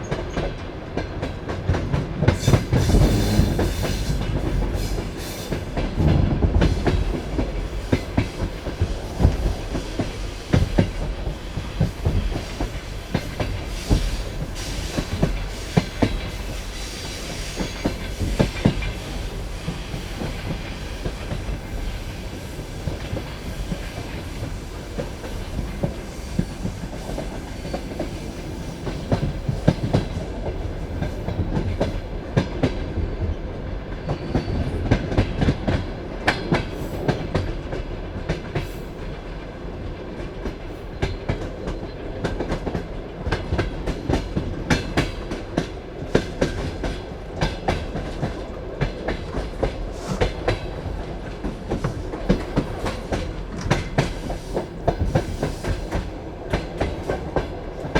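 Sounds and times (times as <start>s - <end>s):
train wheels clattering over rail joints: 0.1s - 32.8s.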